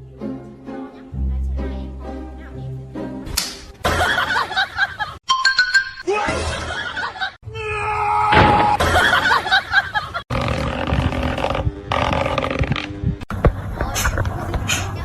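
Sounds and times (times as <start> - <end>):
music: 0.0 - 4.2.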